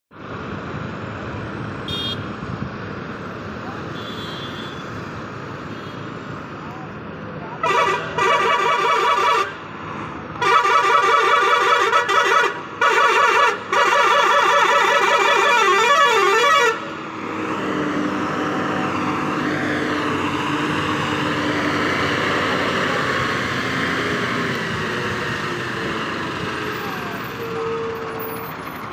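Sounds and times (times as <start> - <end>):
truck musical horn blasts: 7.6 - 9.6, 10.4 - 16.9, 27.4 - 28.4
truck engine running: 10.4 - 28.9.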